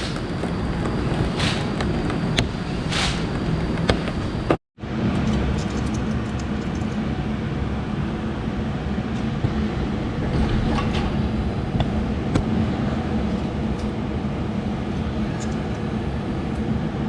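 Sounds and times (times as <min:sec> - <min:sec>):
mechanical running hum: 0:00.0 - 0:17.0.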